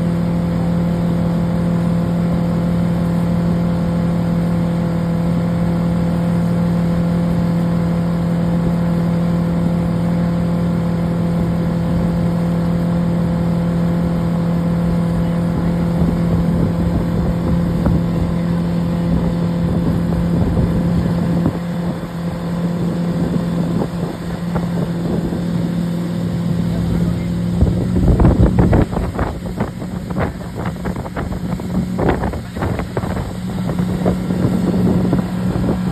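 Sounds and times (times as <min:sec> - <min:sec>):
motorboat engine running: 0:00.0 - 0:35.9
wind and water rushing: 0:00.0 - 0:35.9.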